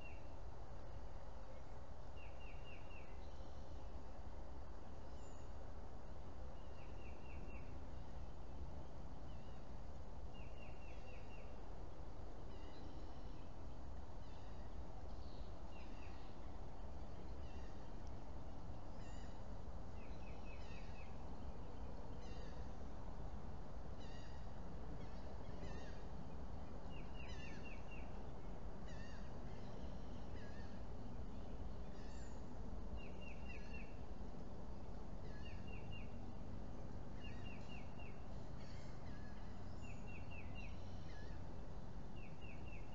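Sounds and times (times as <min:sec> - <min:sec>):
wild birds calling: 0:14.2 - 0:23.0, 0:23.9 - 0:34.1, 0:34.7 - 0:42.9.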